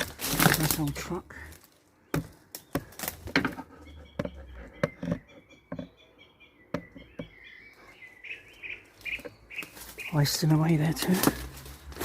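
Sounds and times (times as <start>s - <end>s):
footsteps on loose debris: 0.0s - 3.4s, 9.0s - 12.0s
small bird chirping: 2.0s - 11.0s.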